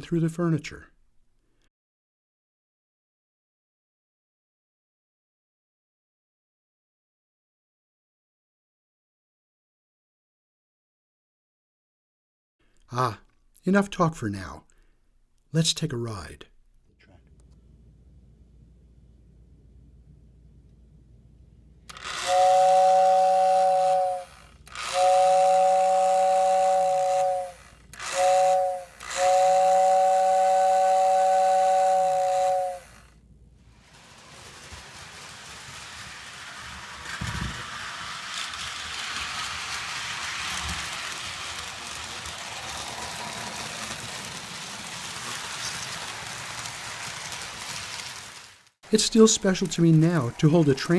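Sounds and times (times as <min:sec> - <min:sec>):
model train whistle blasts: 0:21.9 - 0:33.2
train running rush: 0:33.7 - 0:50.9.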